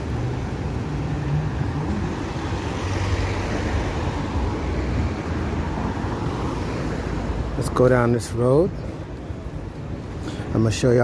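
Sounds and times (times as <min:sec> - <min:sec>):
vehicle passing by: 0:00.0 - 0:07.5
road traffic rumble: 0:00.0 - 0:11.0.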